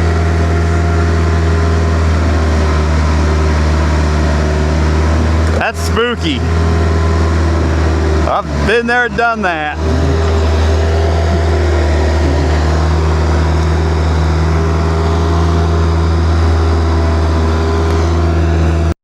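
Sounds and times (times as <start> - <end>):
vehicle engine droning: 0.0 - 19.0.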